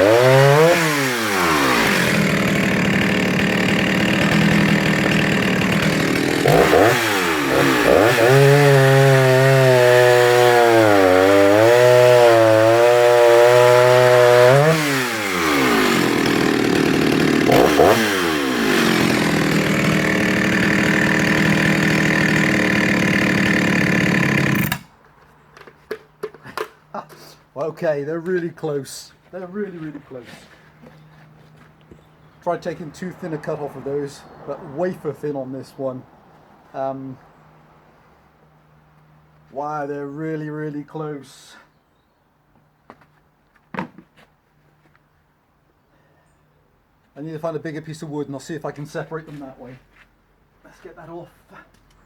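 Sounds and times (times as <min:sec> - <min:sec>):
chainsaw cutting wood: 0:00.0 - 0:25.0.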